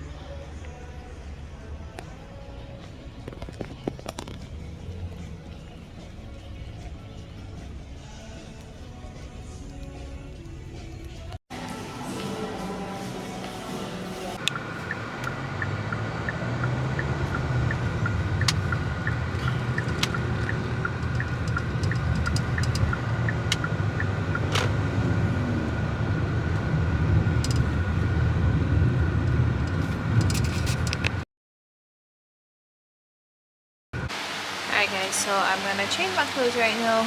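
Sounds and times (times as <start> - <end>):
car engine and road rumble: 0.0 - 31.2
indicator ticking: 14.4 - 24.5
sharp clicks: 14.4 - 24.7.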